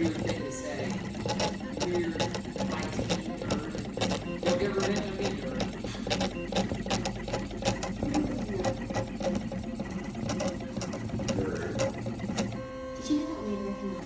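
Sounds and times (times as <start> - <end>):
pen plotter motors whirring: 0.0 - 14.0.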